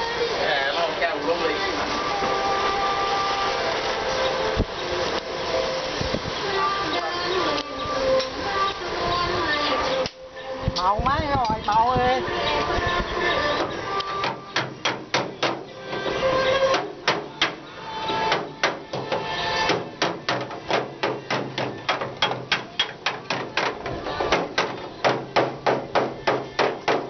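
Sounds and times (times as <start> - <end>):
hammer on sheet metal: 13.6 - 15.7, 16.7 - 17.6, 18.3 - 27.0.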